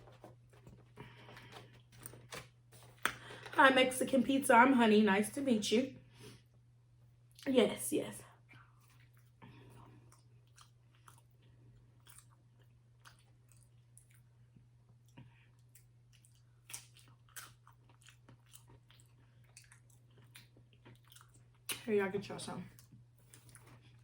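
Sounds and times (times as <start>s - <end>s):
chewing and crunching food: 8.4s - 24.0s.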